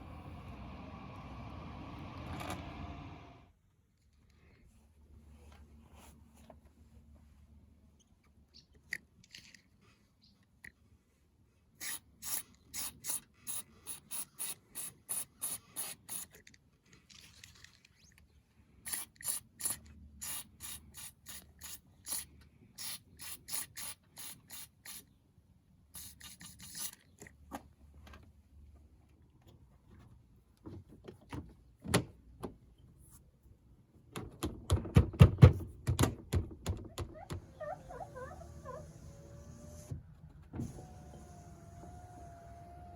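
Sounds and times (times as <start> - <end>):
quick rubbing strokes: 26.0 - 27.1.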